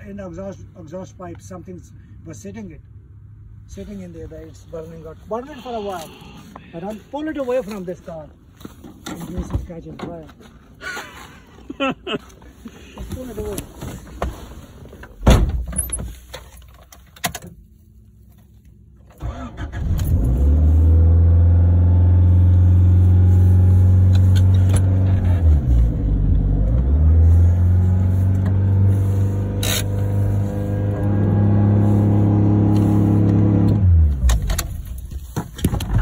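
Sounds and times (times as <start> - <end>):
loud thump: 15.2 - 15.7
car engine starting and idling: 18.6 - 36.0.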